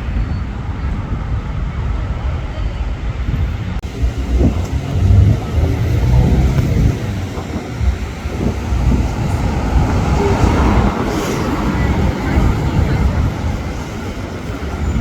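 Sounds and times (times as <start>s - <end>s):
road traffic rumble: 3.6s - 15.0s.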